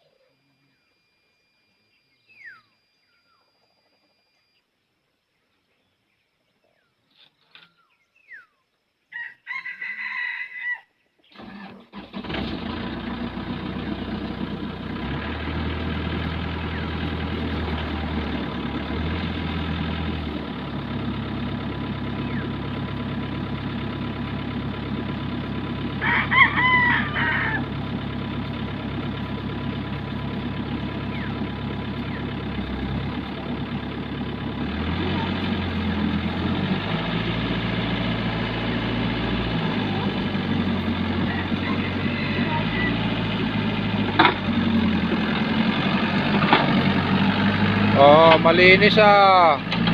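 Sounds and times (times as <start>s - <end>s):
rooster crowing: 9.1s - 11.0s, 25.8s - 28.0s, 39.7s - 43.3s
diesel engine running: 11.4s - 49.9s.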